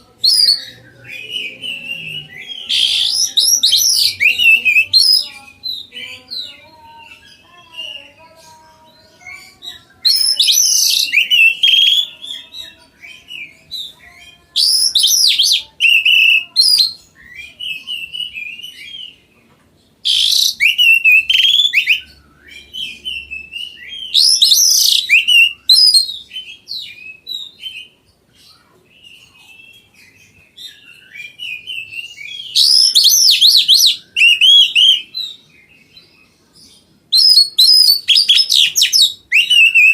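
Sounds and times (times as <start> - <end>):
bird whistling song: 0.2 - 6.4, 10.0 - 19.2, 20.0 - 27.9, 29.0 - 36.1, 37.1 - 39.9
bird twittering: 10.0 - 12.5, 20.0 - 27.9, 30.7 - 35.9, 37.1 - 39.9.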